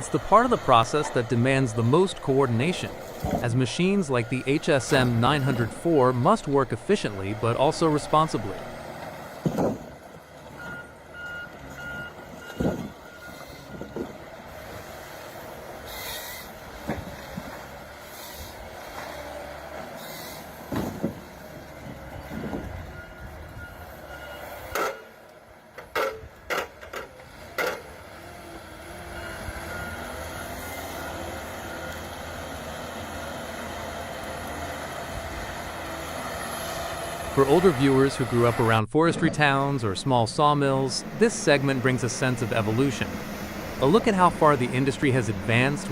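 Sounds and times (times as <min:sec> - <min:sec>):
heavy forestry machine running: 0:00.0 - 0:45.9
reversing alarm beeping: 0:01.6 - 0:08.6, 0:10.6 - 0:14.1, 0:22.4 - 0:25.1.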